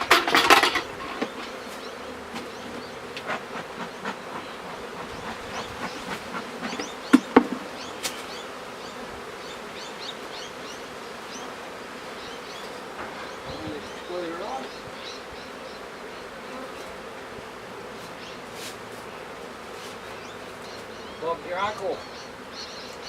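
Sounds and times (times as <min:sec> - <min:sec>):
sharp knocks: 0:00.0 - 0:01.6, 0:05.8 - 0:07.7
honeybees buzzing: 0:00.0 - 0:23.0.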